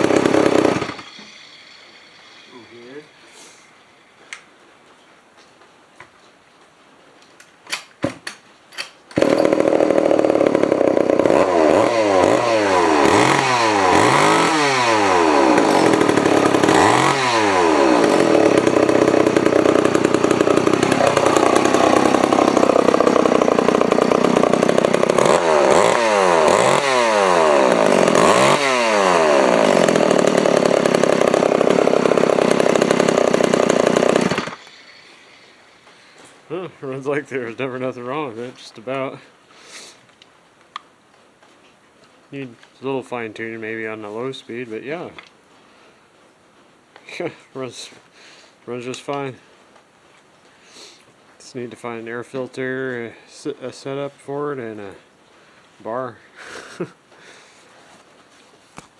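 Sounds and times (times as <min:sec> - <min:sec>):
chainsaw engine revving: 0:00.0 - 0:03.6, 0:09.2 - 0:35.5.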